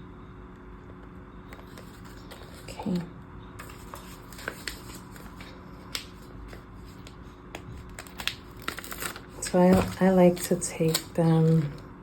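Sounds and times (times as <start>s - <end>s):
paper stickers clicking and tapping: 3.6s - 11.8s.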